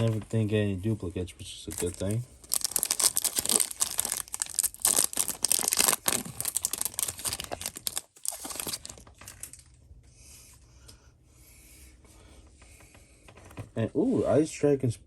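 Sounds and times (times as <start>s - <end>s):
foil wrapper crinkling and tearing: 1.7s - 9.5s.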